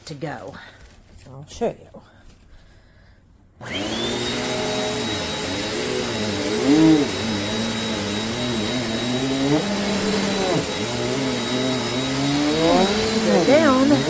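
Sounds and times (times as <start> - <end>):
vacuum cleaner motor whining: 3.6 - 14.0.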